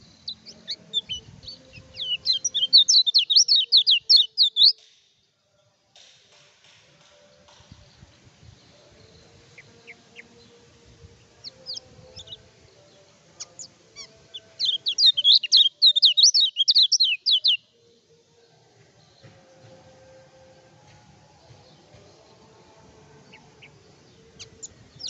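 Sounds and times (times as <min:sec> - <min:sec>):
bird chirping: 0:00.0 - 0:05.0, 0:11.4 - 0:17.8, 0:23.2 - 0:25.0.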